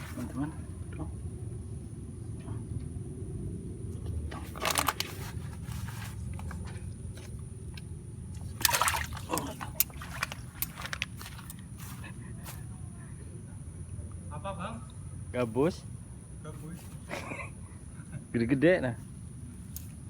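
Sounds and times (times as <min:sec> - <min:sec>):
water splashing and sloshing: 0:00.0 - 0:00.6, 0:04.3 - 0:12.0.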